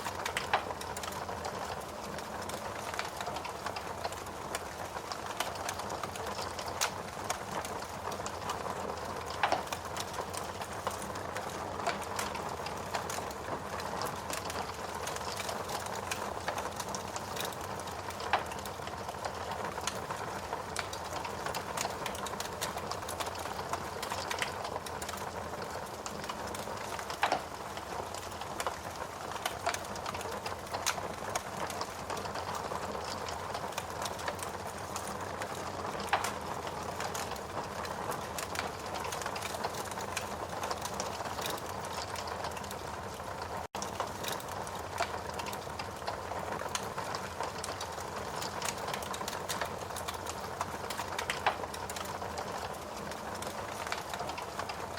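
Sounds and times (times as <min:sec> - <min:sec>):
wood crackling and popping: 0:00.0 - 0:54.9.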